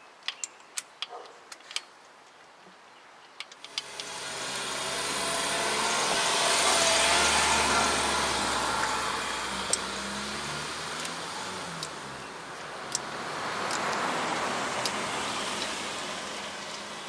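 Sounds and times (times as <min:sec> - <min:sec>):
passing vehicle engine and tyres: 0:03.6 - 0:17.0.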